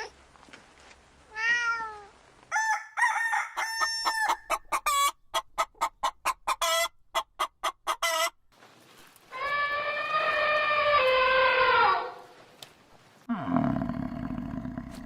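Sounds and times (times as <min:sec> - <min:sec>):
chicken long drawn-out call: 0:02.5 - 0:05.1, 0:09.3 - 0:12.4
chicken clucking: 0:03.9 - 0:08.4.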